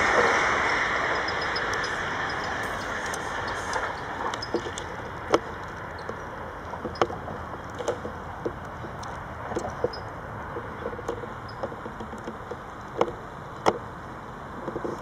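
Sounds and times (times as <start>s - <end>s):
electric train running past: 0.0s - 5.2s.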